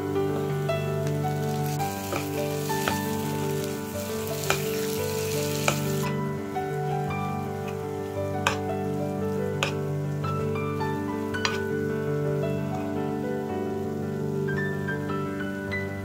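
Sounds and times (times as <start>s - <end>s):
butter sizzling in frying pan: 0.2s - 11.7s
spoon stirring and knocking pan: 1.4s - 6.2s, 8.4s - 8.7s, 9.6s - 9.9s, 11.4s - 11.7s.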